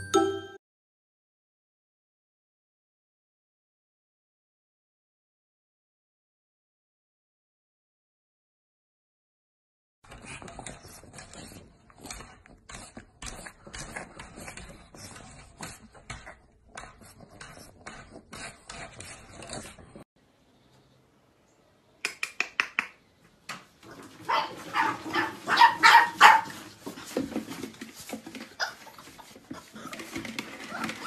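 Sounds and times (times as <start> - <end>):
puppies yipping and whimpering: 28.6 - 31.0.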